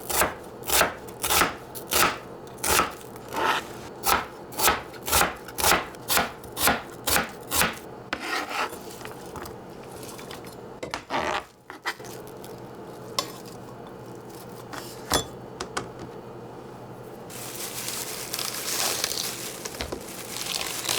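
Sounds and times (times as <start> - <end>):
knife chopping on cutting board: 0.1 - 8.8, 10.8 - 12.1
knife scraping across board: 3.2 - 5.3, 6.1 - 9.2, 10.9 - 12.2.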